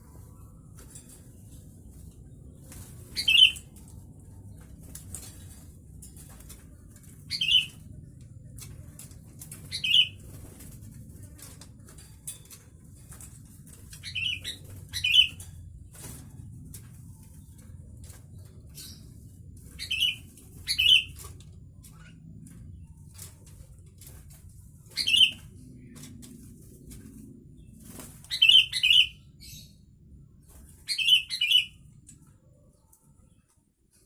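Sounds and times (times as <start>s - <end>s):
bird calling: 3.2s - 3.6s.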